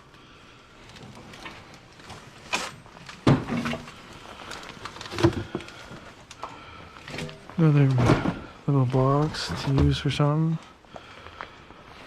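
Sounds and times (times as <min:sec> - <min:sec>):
objects knocking and clattering: 0:03.1 - 0:04.0, 0:04.9 - 0:08.6.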